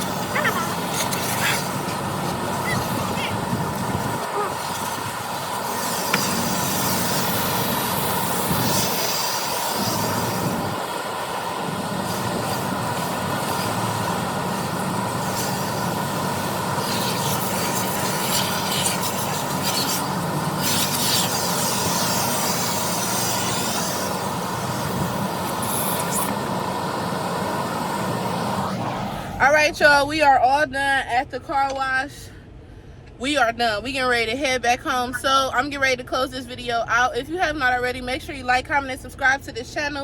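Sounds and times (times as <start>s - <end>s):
high hissing bursts: 0.0s - 11.0s
car wash equipment running: 0.0s - 30.0s.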